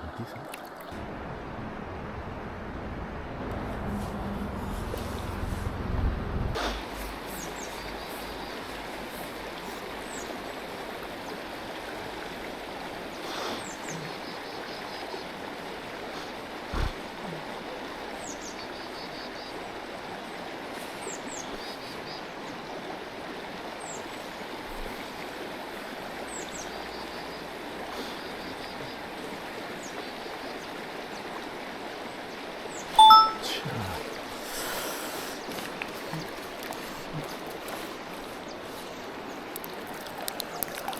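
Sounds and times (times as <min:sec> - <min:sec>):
stream running: 0:00.0 - 0:02.7, 0:06.5 - 0:40.9
short high chirps: 0:33.0 - 0:33.5.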